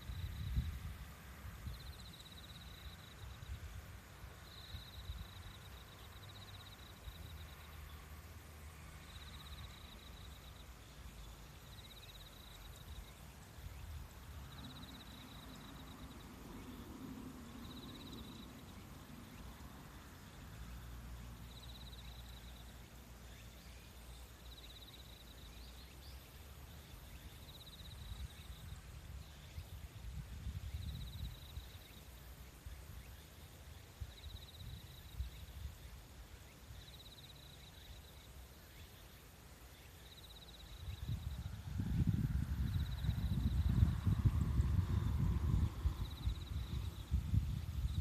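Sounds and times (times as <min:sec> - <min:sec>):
faint low rumble: 0:40.0 - 0:48.0.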